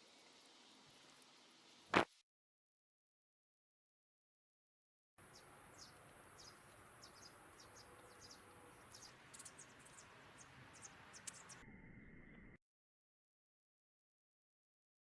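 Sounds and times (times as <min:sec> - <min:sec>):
faint outdoor ambience: 0:00.0 - 0:02.2, 0:05.2 - 0:12.6.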